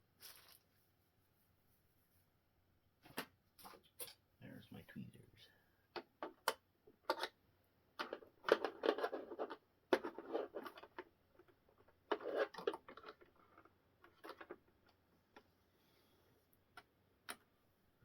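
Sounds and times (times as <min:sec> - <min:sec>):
scratching and rustling of handling: 0:00.0 - 0:05.4, 0:08.0 - 0:17.0.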